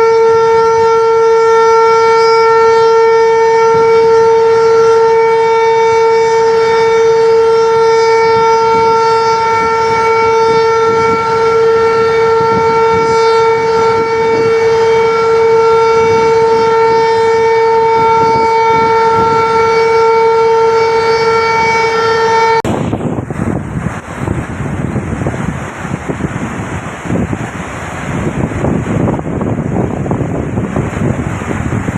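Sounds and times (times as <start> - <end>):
warning siren steady tone: 0.0 - 24.2
rushing water and wind: 0.0 - 31.9.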